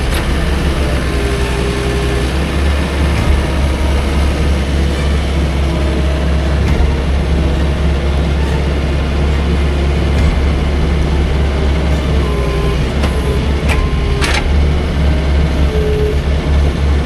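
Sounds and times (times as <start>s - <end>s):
sawmill engine rumbling: 0.0s - 17.0s.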